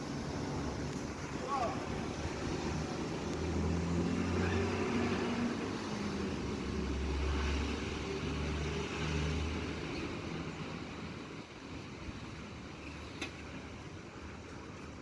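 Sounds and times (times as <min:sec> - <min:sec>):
rain hissing: 0:00.0 - 0:08.8.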